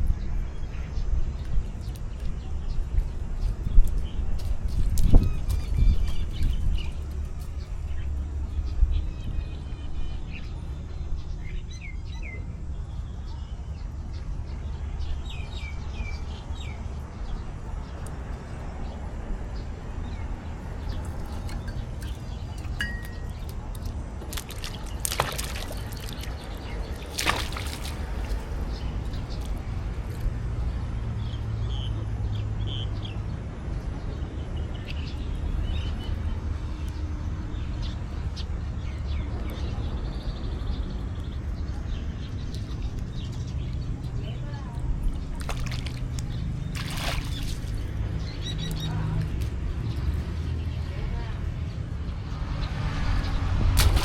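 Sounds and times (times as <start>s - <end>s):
high chirps: 22.7s - 23.5s.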